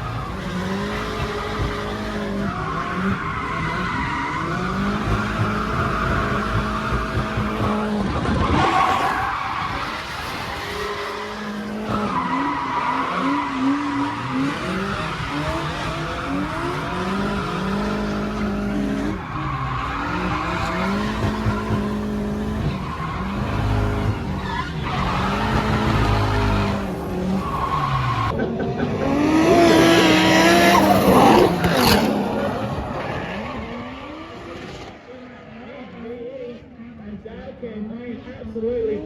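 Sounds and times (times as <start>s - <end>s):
tyres screeching: 0.0s - 34.8s
car engine revving: 0.0s - 35.6s.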